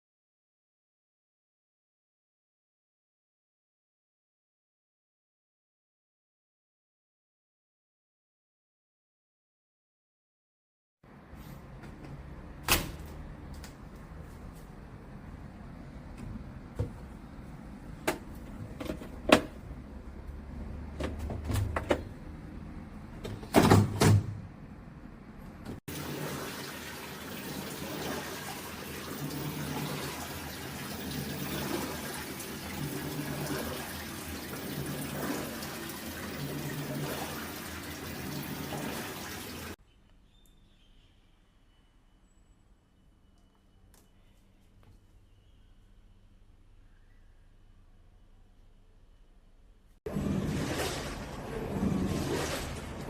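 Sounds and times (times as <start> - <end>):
water sloshing in washer tub: 25.8 - 39.8, 50.1 - 53.0.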